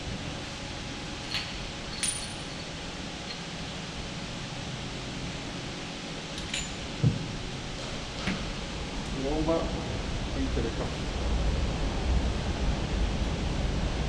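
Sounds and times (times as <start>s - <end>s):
workshop hum: 0.0s - 14.0s
metallic clinks of hand tools: 1.3s - 3.4s, 6.4s - 6.8s.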